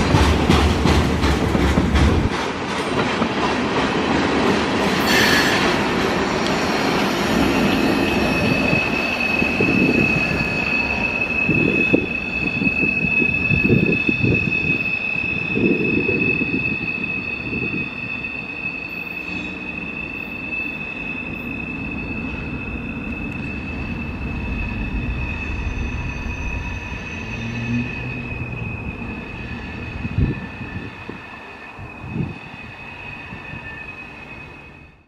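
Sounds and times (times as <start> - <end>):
train wheels squealing: 4.9 - 35.0
freight cars rumbling: 19.2 - 31.3.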